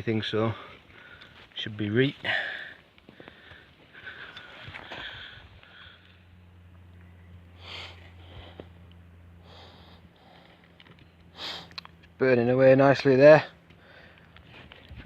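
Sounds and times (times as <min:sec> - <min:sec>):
low hum: 0:00.1 - 0:15.0
person sniffing: 0:11.4 - 0:11.8.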